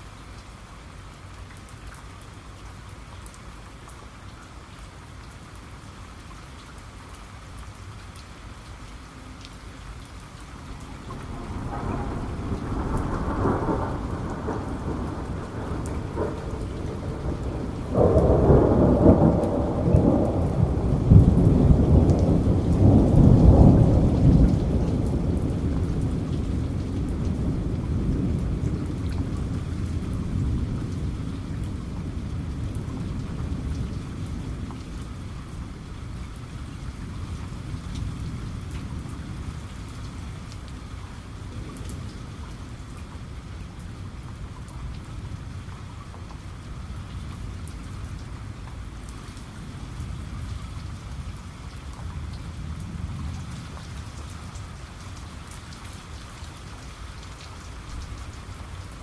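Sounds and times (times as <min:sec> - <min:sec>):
heavy rain: 0:00.0 - 0:59.0
thunder rumbling and clapping: 0:10.9 - 0:35.2.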